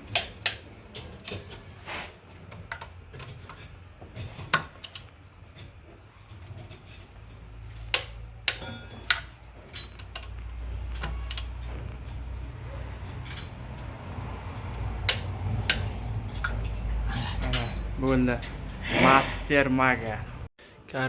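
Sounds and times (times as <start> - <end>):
metallic clicks of hand tools: 4.5 - 5.2, 7.9 - 11.6, 15.0 - 16.7.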